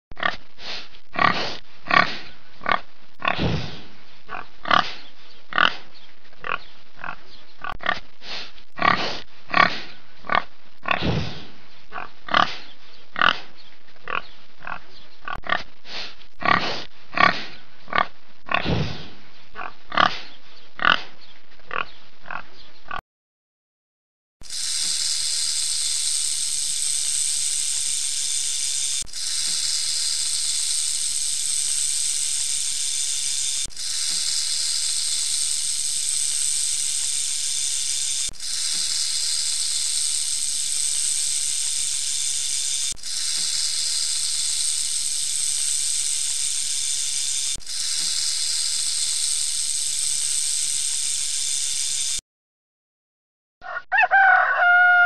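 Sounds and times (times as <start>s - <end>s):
rattlesnake tail rattling: 24.4s - 52.2s.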